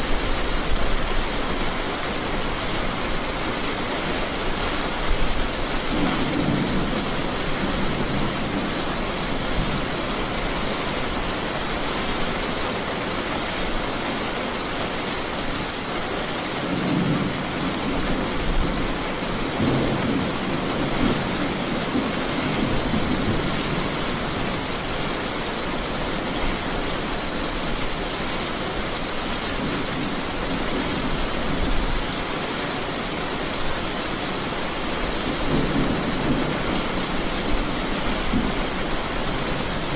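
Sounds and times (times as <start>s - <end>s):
heavy rain hissing: 0.0s - 39.9s
thunder rumbling: 5.0s - 10.5s, 16.6s - 25.4s, 35.2s - 39.9s.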